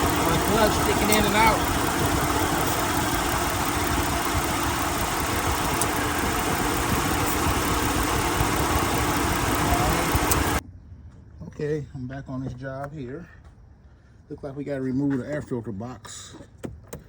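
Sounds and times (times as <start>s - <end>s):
ac compressor kicking in and out: 0.0s - 10.6s
car engine idling: 0.0s - 10.6s.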